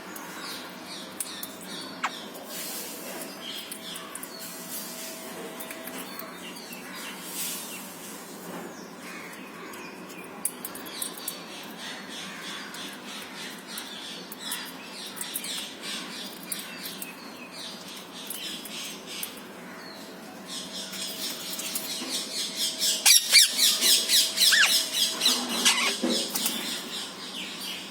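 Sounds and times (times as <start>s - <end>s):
parrots squawking: 22.3s - 26.9s.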